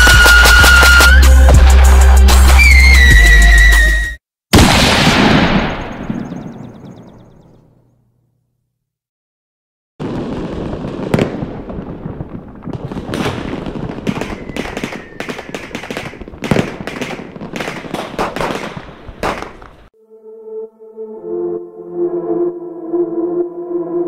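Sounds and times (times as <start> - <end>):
faint falling whistle: 0.0 - 1.4, 2.5 - 4.2, 14.2 - 15.3
firework bangs and crackling: 0.0 - 3.1, 4.6 - 7.0, 10.0 - 19.9.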